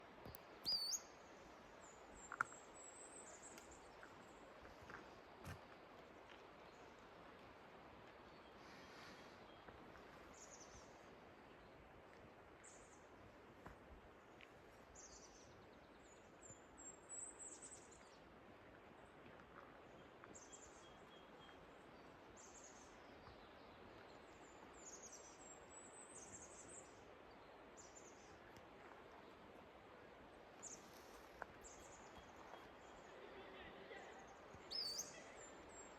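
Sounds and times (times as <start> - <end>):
faint steady hiss: 0.0 - 35.9
small birds calling: 0.6 - 1.1, 34.1 - 35.9.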